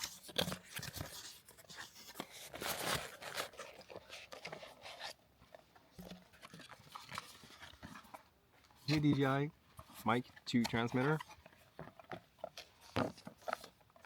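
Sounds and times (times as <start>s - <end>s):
packaging crinkling and tearing: 0.0s - 5.2s.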